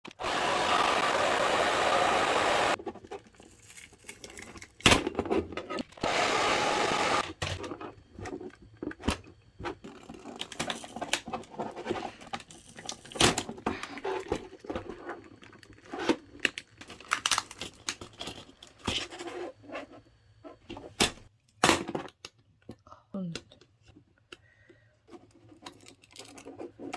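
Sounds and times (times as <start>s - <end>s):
plastic parts clicking and knocking: 7.2s - 19.0s, 20.6s - 26.9s.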